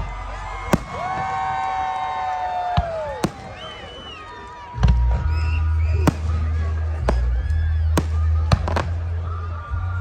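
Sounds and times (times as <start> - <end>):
crowd: 0.0 - 10.0
music: 0.0 - 10.0
firework shell boom: 6.0 - 8.9.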